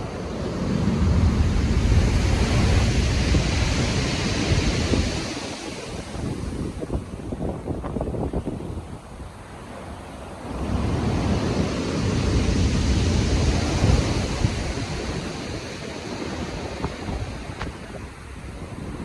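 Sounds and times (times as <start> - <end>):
waves breaking: 0.0 - 8.3, 9.4 - 18.1
rough sea rumble: 0.0 - 19.0
wind: 0.0 - 19.0.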